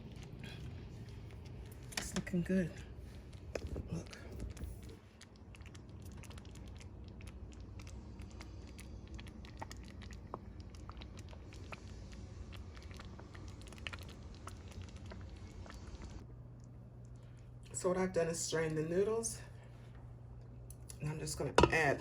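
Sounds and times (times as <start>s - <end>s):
sauce simmering in a pan: 0.0s - 16.3s
low even hum: 0.0s - 22.0s.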